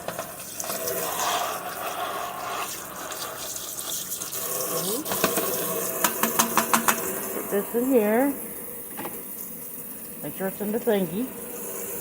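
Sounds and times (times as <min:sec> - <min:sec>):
tap running into sink: 0:00.0 - 0:07.4, 0:08.9 - 0:09.5.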